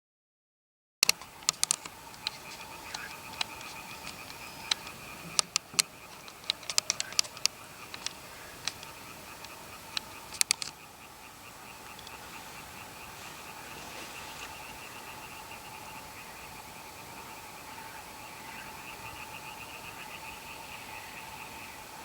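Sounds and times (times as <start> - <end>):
sharp clicks and ticks: 1.0 - 10.8, 11.8 - 12.2
frogs calling: 1.0 - 22.0.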